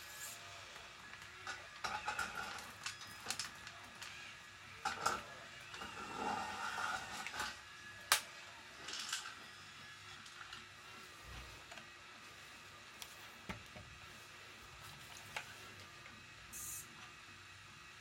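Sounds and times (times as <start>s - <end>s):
small motors whining: 0.0s - 13.3s.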